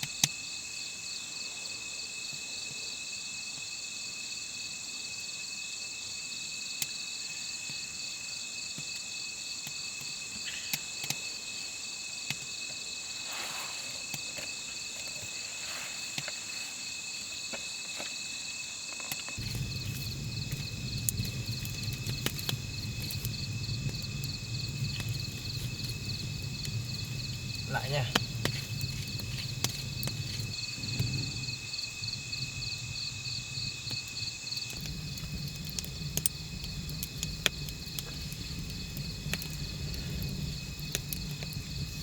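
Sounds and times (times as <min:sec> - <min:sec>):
insects trilling: 0:00.0 - 0:42.0
low rumble: 0:19.4 - 0:42.0.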